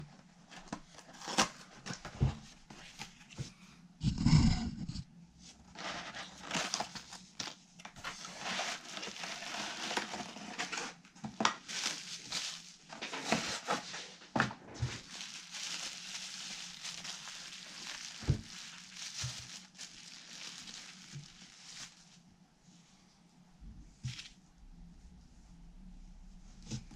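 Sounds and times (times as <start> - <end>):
crinkling rustles: 5.7 - 22.2.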